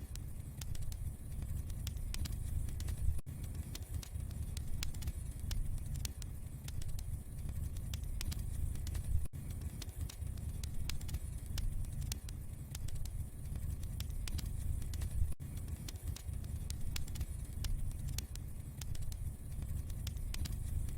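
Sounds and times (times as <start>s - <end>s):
burning logs crackling and popping: 0.6s - 20.9s.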